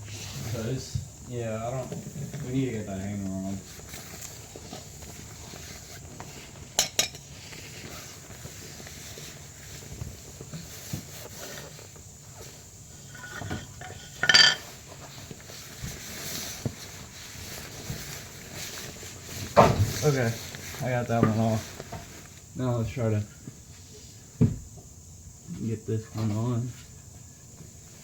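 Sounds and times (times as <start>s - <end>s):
metal clinks and knocks: 13.1s - 14.8s.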